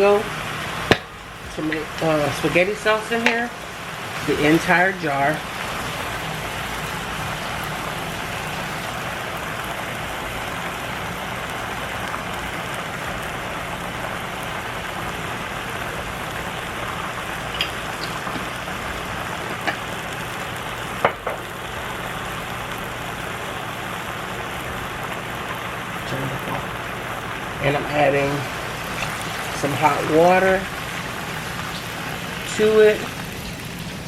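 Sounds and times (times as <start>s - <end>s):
food sizzling in a pan: 0.0s - 34.0s.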